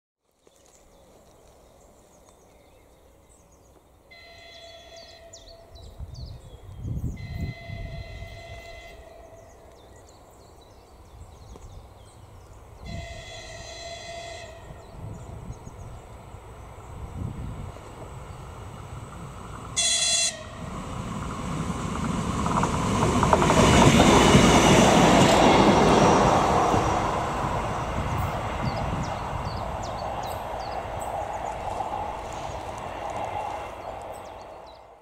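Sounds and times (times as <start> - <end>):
train horn blasts: 4.1 - 5.8, 7.1 - 9.5, 12.8 - 15.0, 19.8 - 20.7.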